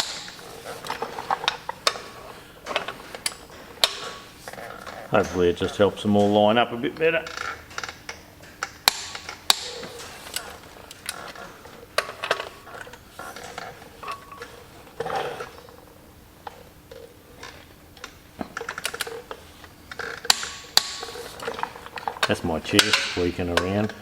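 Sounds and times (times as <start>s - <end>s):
chair squeaking: 0.0s - 24.0s
metal tools clicking and clinking: 0.0s - 24.0s.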